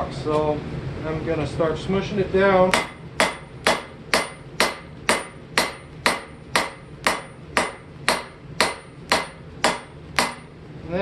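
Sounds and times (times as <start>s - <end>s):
hammer striking hot steel: 2.7s - 10.6s.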